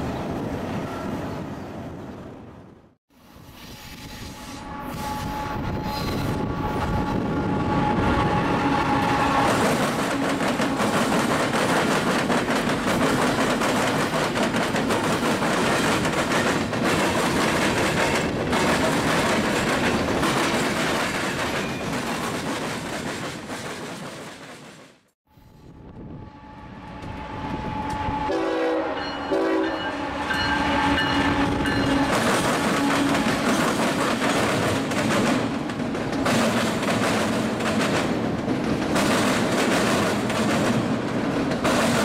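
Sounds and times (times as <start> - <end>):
train wheel and rail noise: 0.0 - 42.0
train horn: 3.2 - 10.9, 25.6 - 33.4.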